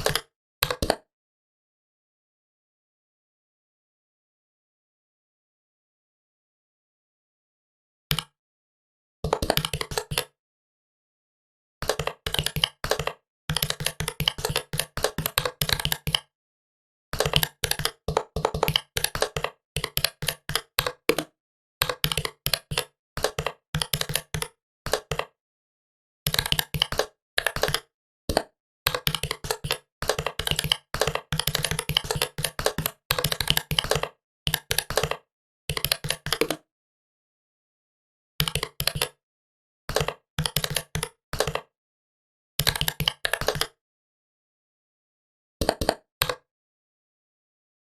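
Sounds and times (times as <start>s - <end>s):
computer keyboard typing: 0.0s - 1.0s, 9.2s - 10.3s, 11.8s - 16.3s, 17.2s - 25.4s, 26.3s - 36.6s, 38.4s - 39.2s, 39.9s - 41.7s, 42.6s - 43.8s, 45.6s - 46.4s.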